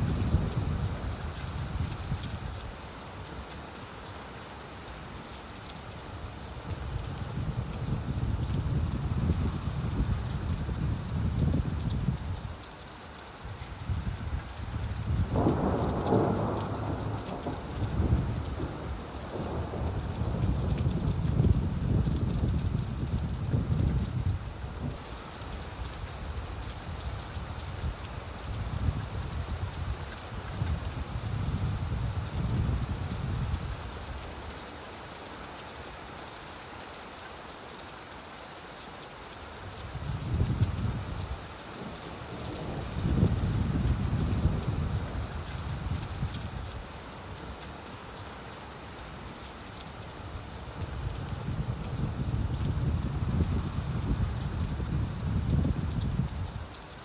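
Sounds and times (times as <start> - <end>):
steady rain falling: 0.0 - 57.0
thunder rumble: 15.2 - 25.0, 42.2 - 46.1.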